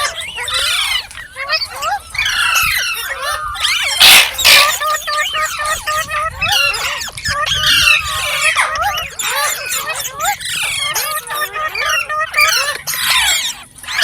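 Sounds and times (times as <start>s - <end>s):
parrot harsh screeches: 0.0s - 5.8s
parrots chirping: 0.0s - 14.0s.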